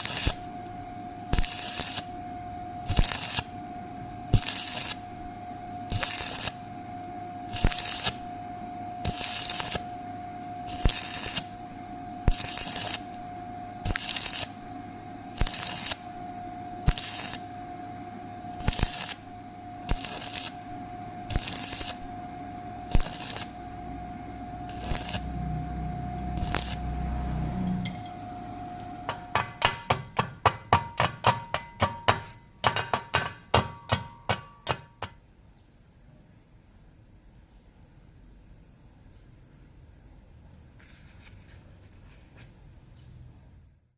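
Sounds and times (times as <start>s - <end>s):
welding crackle bursts: 0.0s - 0.5s, 1.3s - 2.2s, 2.8s - 3.6s, 4.3s - 5.1s, 5.9s - 6.7s, 7.5s - 8.2s, 9.0s - 10.0s, 10.7s - 11.6s, 12.2s - 13.2s, 13.8s - 14.7s, 15.3s - 16.1s, 16.8s - 17.5s, 18.5s - 19.3s, 19.9s - 20.7s, 21.3s - 22.1s, 22.9s - 23.6s, 24.7s - 25.3s, 26.4s - 26.9s
ringing metallic taps: 29.1s - 35.1s.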